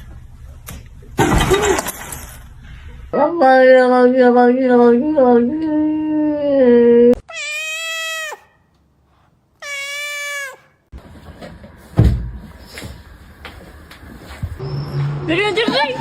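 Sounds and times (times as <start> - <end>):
cat meowing: 7.2 - 8.6, 9.6 - 10.8.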